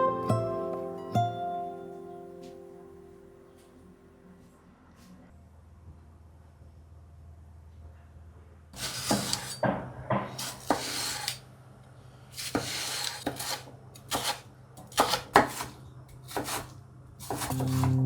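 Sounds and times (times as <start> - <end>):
scraping or rubbing: 10.4 - 11.4, 15.0 - 18.0.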